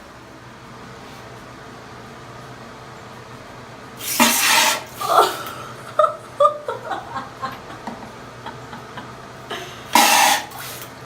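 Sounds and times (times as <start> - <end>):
exhaust fan humming: 0.0 - 11.0
person laughing and giggling: 5.0 - 9.9.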